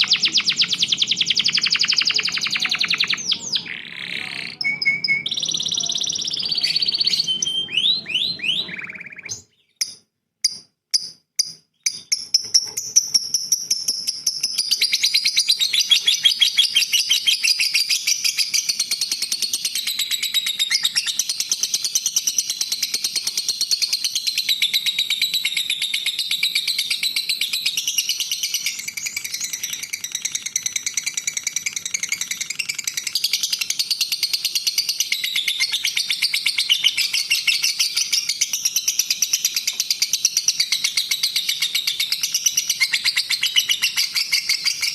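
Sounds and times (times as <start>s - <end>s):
fast trilling bird chatter: 0.0s - 9.9s, 27.8s - 44.9s
songbird warbling: 0.0s - 10.0s
sharp bird chips: 0.0s - 15.2s.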